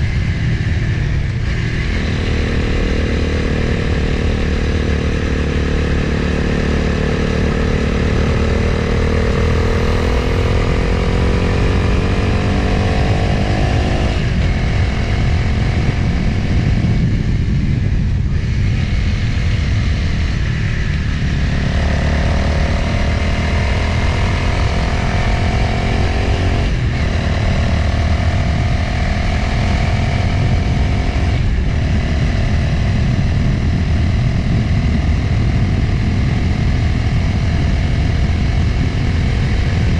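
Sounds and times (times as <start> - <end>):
motorcycle engine: 0.0 - 39.9
wind rushing over microphone: 0.0 - 39.9.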